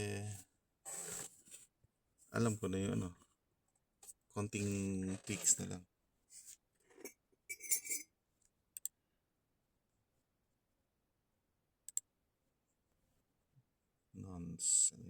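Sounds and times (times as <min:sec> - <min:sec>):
faint handling sounds: 0:00.2 - 0:08.6.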